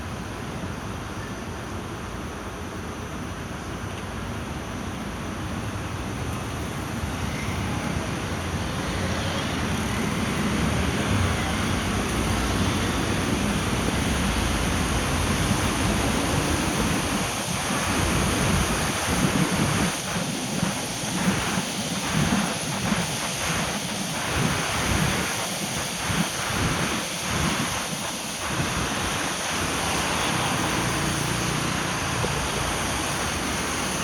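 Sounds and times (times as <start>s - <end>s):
rain: 0.0s - 34.0s
tyres on wet road: 2.2s - 23.6s, 24.2s - 34.0s.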